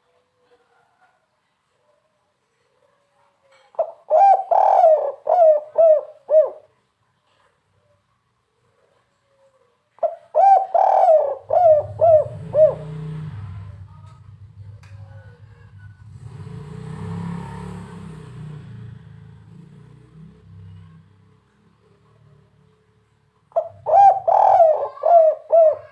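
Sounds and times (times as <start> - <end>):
dove cooing: 3.8 - 6.8, 9.6 - 13.8, 23.5 - 25.9.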